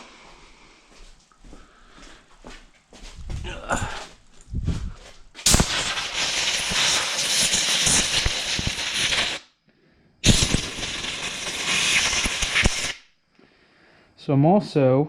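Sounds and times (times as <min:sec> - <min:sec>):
compressed air hissing from blowgun: 0:05.4 - 0:09.5, 0:10.2 - 0:13.1.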